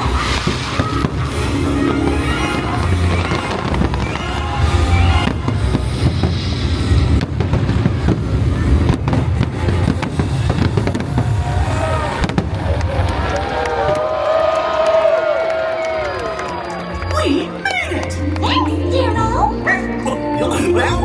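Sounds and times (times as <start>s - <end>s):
loud music from speakers: 0.0s - 6.6s
fireworks booming and cracking: 0.0s - 14.0s.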